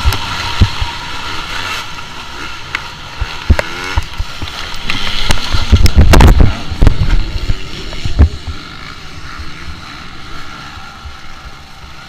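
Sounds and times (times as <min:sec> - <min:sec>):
wind noise on microphone: 0:03.4 - 0:08.6.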